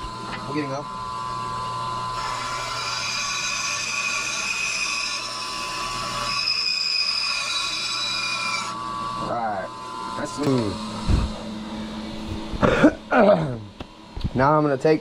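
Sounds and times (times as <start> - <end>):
high whine of saw cutting wood: 0.0 - 13.3
bandsaw motor hum: 0.0 - 14.6.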